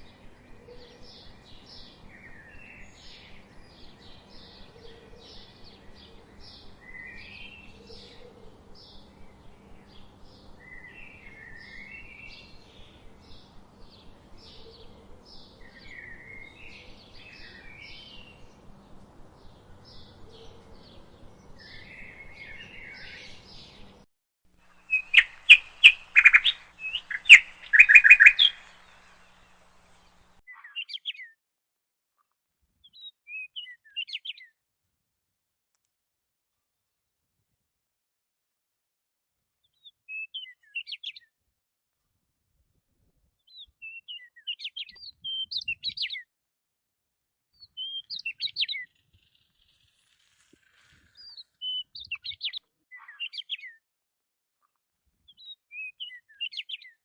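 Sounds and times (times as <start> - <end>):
low steady hum: 0.0 - 24.0, 24.6 - 30.4
budgerigars chirping: 24.8 - 30.3.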